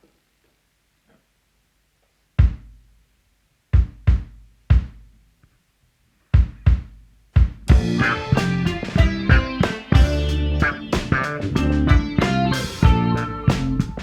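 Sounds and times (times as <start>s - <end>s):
drum kit accented hits: 6.4s - 14.0s
short low bass notes: 7.7s - 14.0s.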